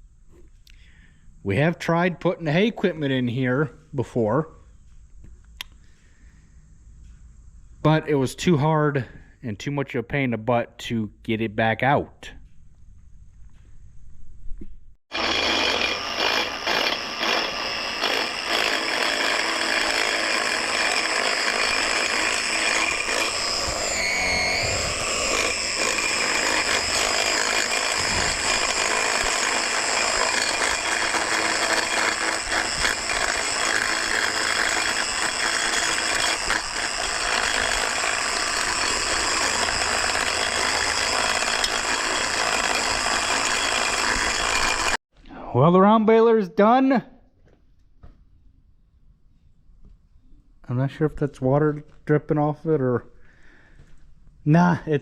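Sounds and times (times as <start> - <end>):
machine rattling and whining: 15.1 - 45.0.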